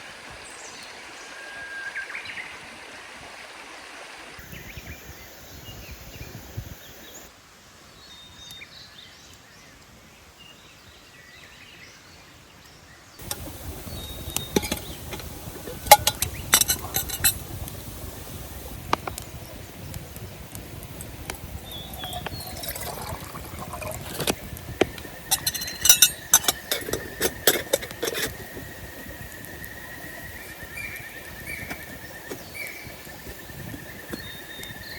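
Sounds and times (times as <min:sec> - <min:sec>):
camp cookware clinking: 0:13.2 - 0:34.9
water being poured: 0:13.2 - 0:34.9.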